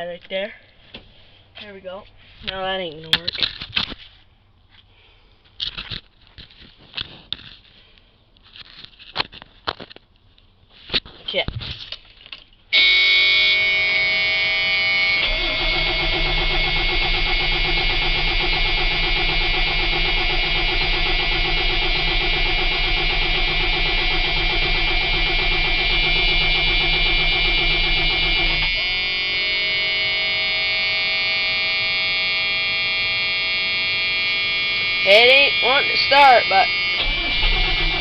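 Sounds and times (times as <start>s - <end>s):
high-pitched warning buzzer: 12.7s - 38.0s
diesel engine starter cranking: 12.8s - 38.0s.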